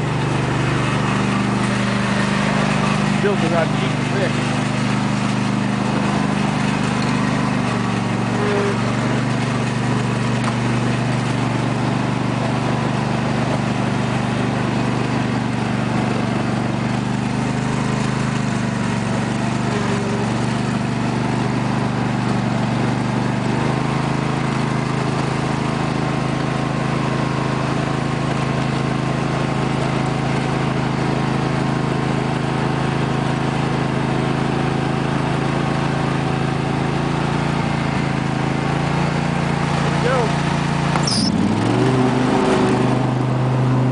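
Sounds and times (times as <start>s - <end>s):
lawn tractor engine running: 0.0s - 43.9s.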